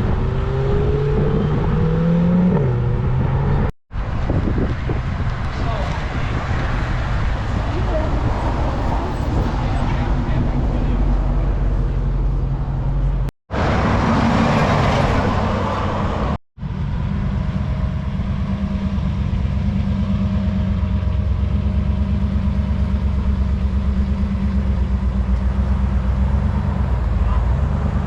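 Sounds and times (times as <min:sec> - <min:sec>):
car revving or passing: 0:00.0 - 0:05.3, 0:06.0 - 0:28.0
car engine idling: 0:16.6 - 0:27.5.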